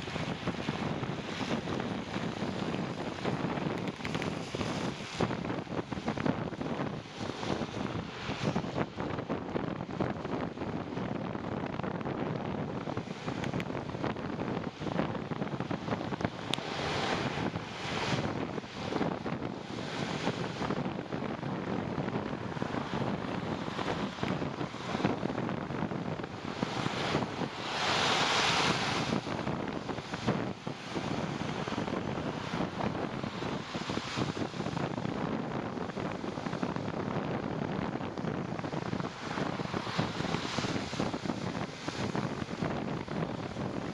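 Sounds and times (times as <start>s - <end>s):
wind rushing over microphone: 0.0s - 43.9s
small clicks: 3.7s - 4.7s.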